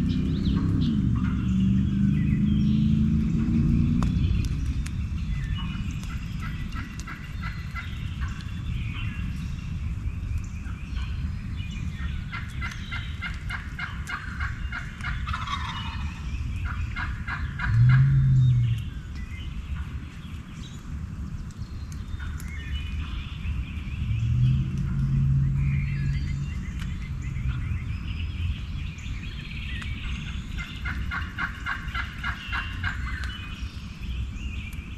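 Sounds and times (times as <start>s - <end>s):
steady low rumble: 0.0s - 34.9s
turkeys gobbling: 12.3s - 18.4s, 30.6s - 33.4s
short low hum: 17.7s - 19.0s.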